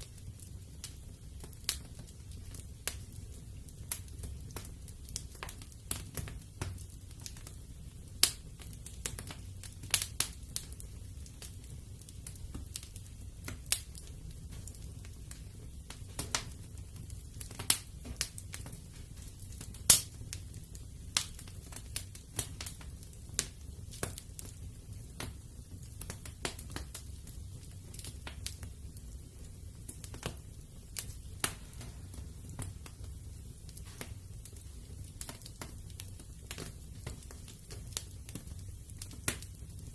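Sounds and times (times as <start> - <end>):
fire crackling and popping: 0.0 - 39.9
low steady rumble: 28.7 - 35.7.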